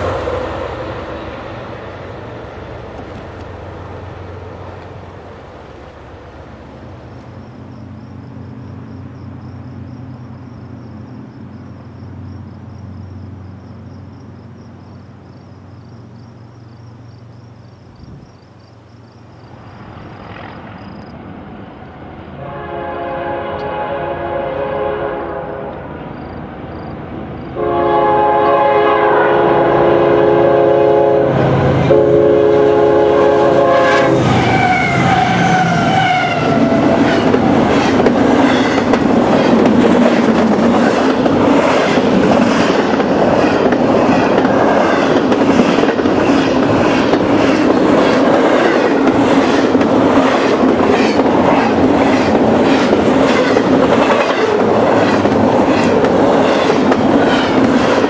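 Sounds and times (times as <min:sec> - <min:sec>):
locomotives passing: 0:00.0 - 0:58.0
train horn blasts: 0:22.4 - 0:26.0, 0:27.6 - 0:37.2
wheels clacking over rail joints: 0:34.2 - 0:58.0.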